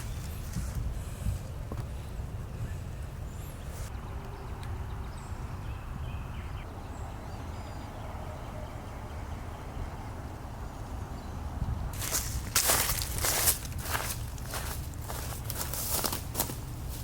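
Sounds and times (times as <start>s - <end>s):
wind buffeting microphone: 0.0s - 3.7s, 9.1s - 17.0s.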